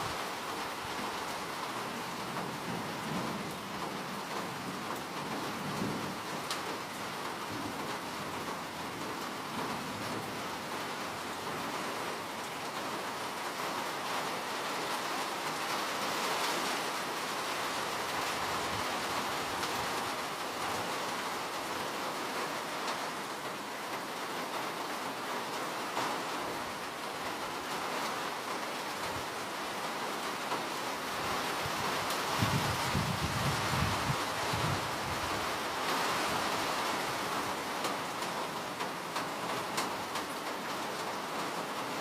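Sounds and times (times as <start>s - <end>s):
steady rain hiss: 0.0s - 42.0s
raindrop ticks: 37.8s - 41.2s.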